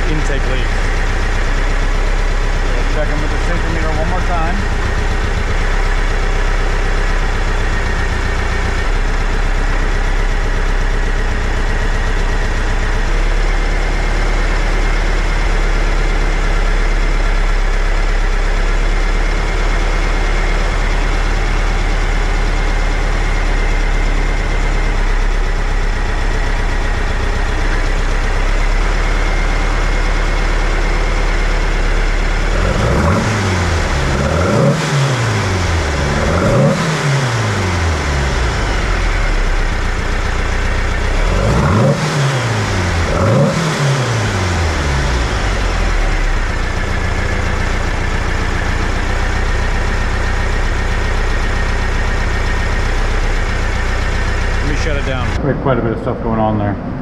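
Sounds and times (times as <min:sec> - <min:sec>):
engine revving: 0:00.0 - 0:11.3, 0:26.4 - 0:57.0
car engine idling: 0:00.0 - 0:57.0.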